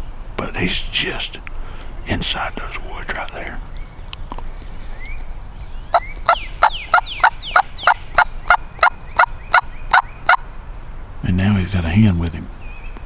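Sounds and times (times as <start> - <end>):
turkey hen yelping: 5.9 - 10.4.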